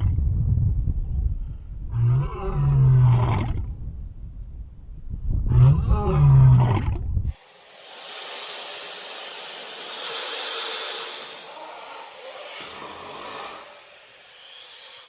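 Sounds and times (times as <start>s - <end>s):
deep animal call: 1.9s - 3.7s, 5.4s - 7.0s
steady hiss: 7.3s - 15.0s.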